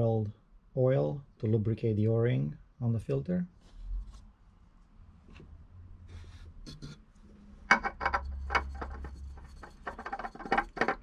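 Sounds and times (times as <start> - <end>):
oil filter clicking and rubbing: 7.6 - 11.0.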